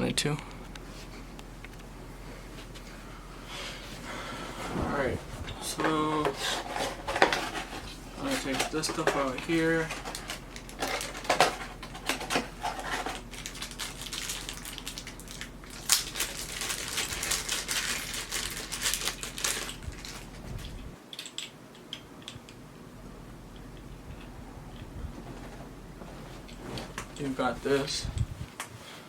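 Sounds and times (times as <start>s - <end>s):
plastic packaging rustling: 5.6s - 21.4s.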